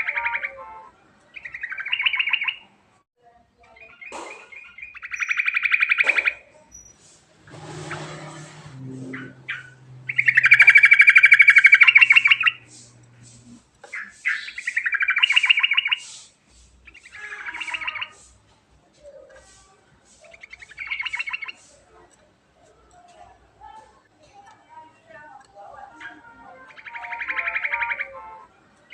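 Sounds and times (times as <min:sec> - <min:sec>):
bird singing rattling trills: 0:01.3 - 0:02.7, 0:03.7 - 0:18.4, 0:20.1 - 0:21.8, 0:25.7 - 0:28.9.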